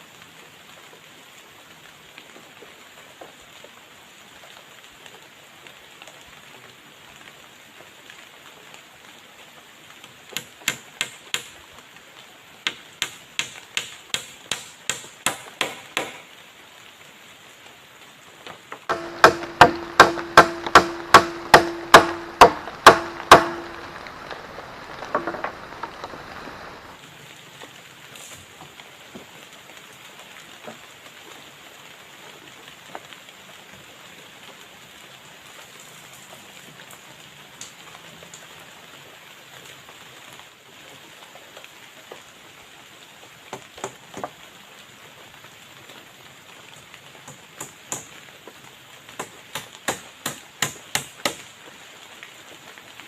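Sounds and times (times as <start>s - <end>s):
steady rain hiss: 0.0s - 53.0s
sharp blows on wood: 12.7s - 16.3s, 18.9s - 24.0s, 49.2s - 51.4s.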